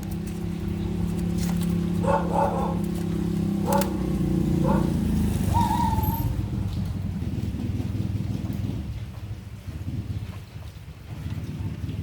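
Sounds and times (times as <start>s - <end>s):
low mechanical drone: 0.0s - 10.5s
dog barking: 2.0s - 3.0s, 3.6s - 6.1s
dog whining: 4.6s - 6.4s.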